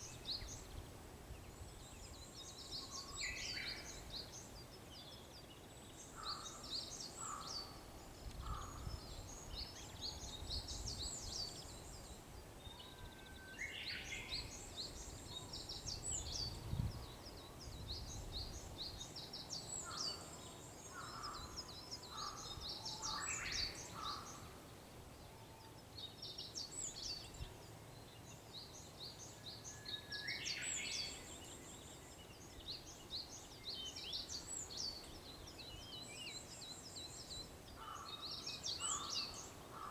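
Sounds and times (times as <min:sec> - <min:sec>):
small birds twittering: 0:00.0 - 0:39.9
warbler whistling song: 0:25.6 - 0:39.9.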